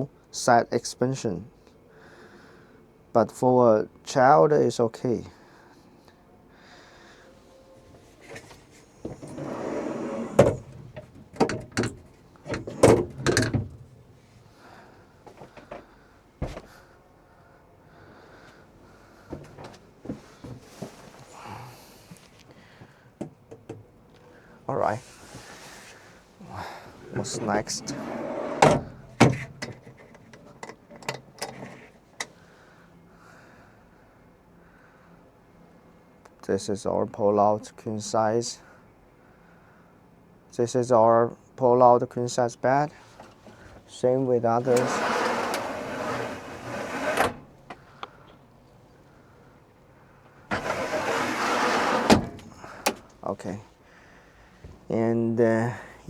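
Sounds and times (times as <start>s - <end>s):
metal furniture scraping: 8.2s - 13.9s, 25.0s - 29.6s, 44.6s - 47.6s, 50.5s - 53.0s
metal parts knocking and clattering: 10.4s - 13.8s.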